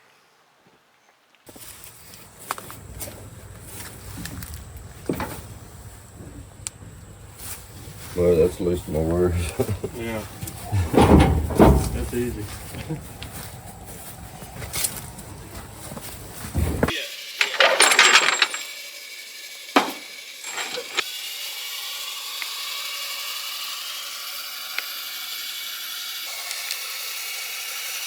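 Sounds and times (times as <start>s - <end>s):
steady hiss: 1.5s - 21.0s
tools and metal parts clanking: 10.4s - 13.4s, 16.5s - 18.8s, 19.8s - 21.0s
sharp metallic knocks: 10.8s - 12.6s, 19.8s - 21.0s.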